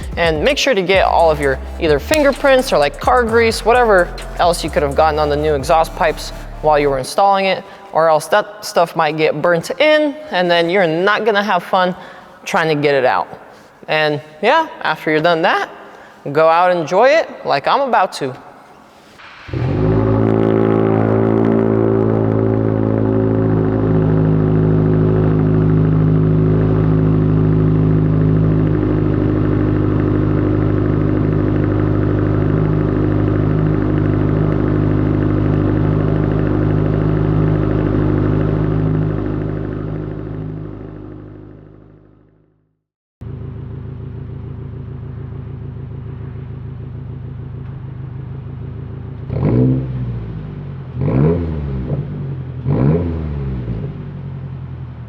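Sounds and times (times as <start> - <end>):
car engine revs: 0.0 - 7.1, 19.2 - 42.2, 43.2 - 55.0
car engine idling: 0.0 - 7.2, 19.2 - 42.4, 43.2 - 55.0.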